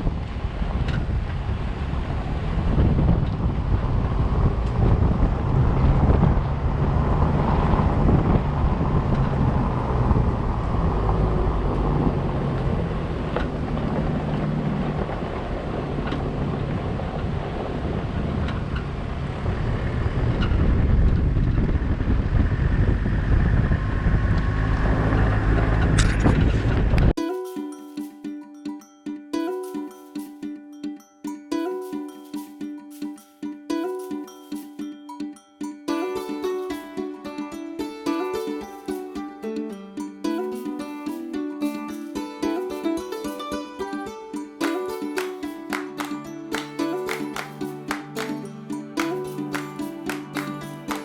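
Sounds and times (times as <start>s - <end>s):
wind buffeting microphone: 0.0s - 27.2s
vehicle engine running: 0.2s - 27.1s
music: 27.2s - 51.0s.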